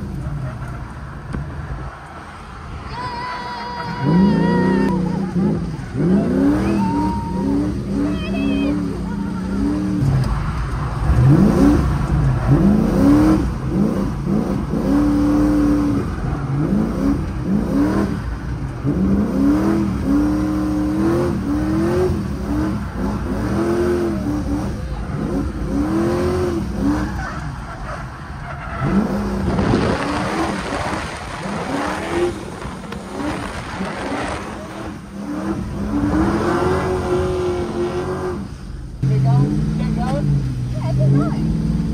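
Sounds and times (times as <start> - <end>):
car engine revving: 3.9 - 41.9.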